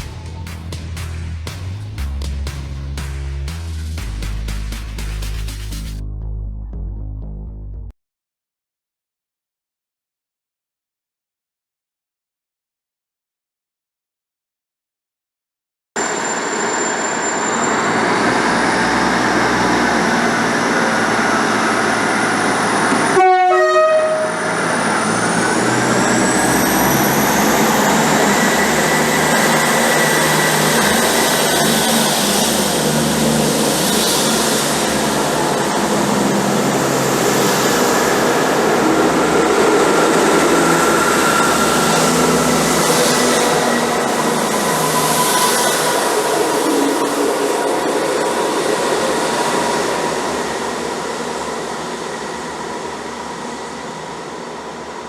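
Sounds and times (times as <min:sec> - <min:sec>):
train engine and wheels running: 0:00.0 - 0:06.0, 0:16.0 - 0:55.0
train horn blast: 0:22.9 - 0:24.9.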